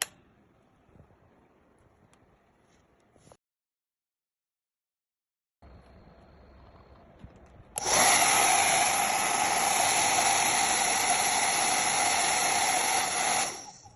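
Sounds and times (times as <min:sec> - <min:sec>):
hair dryer running: 0:07.8 - 0:13.9.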